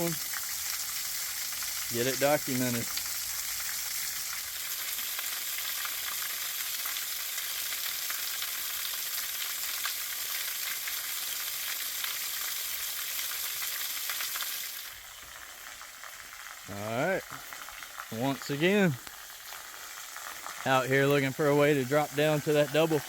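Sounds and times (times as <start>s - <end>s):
small waterfall splashing: 0.0s - 23.0s.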